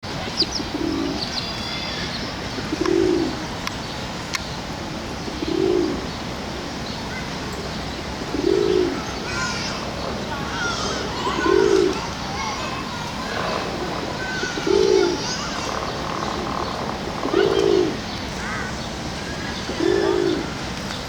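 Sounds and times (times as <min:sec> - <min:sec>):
pigeon cooing: 0:00.5 - 0:03.4, 0:05.3 - 0:06.1, 0:07.6 - 0:18.7, 0:19.3 - 0:20.6.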